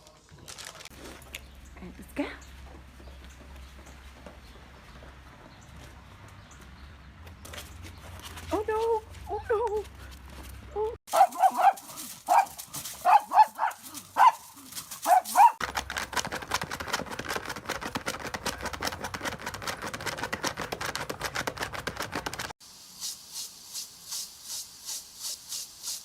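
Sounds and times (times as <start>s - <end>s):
dog barking: 11.1s - 15.6s
fast crackly clicking: 14.7s - 22.5s.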